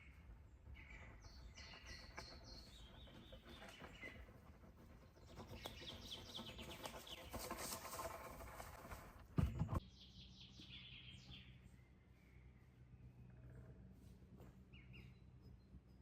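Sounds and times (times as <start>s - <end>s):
songbird calls: 9.8s - 13.9s.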